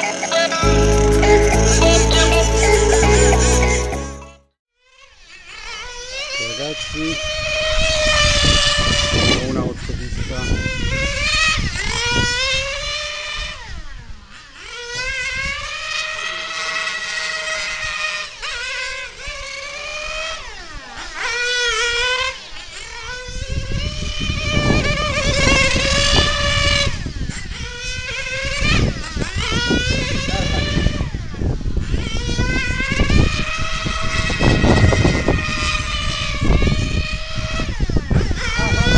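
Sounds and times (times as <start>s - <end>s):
rc car engine whine: 4.9s - 38.9s
wind rumble on microphone: 6.8s - 14.2s, 23.0s - 38.9s.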